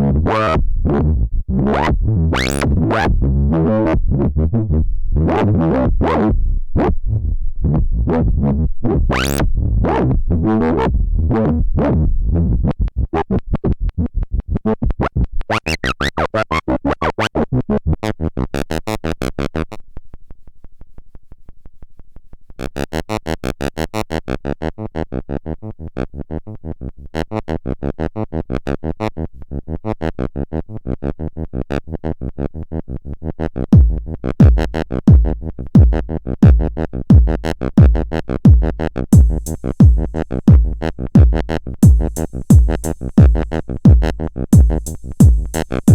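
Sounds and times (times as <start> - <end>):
heavy bass hits: 33.8 - 45.9
synthesizer pulsing pattern: 39.2 - 45.9.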